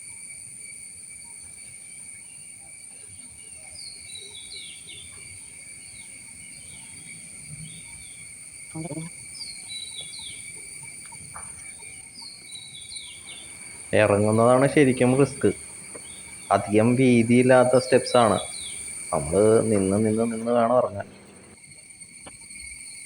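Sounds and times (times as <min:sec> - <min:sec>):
high-pitched insect drone: 0:00.0 - 0:23.0
bird chirping: 0:03.3 - 0:21.6.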